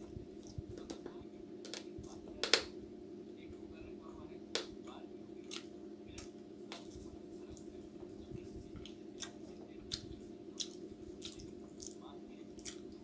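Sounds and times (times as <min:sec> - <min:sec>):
person chewing and lip smacking: 0:00.4 - 0:00.9, 0:05.4 - 0:07.7, 0:08.6 - 0:13.0.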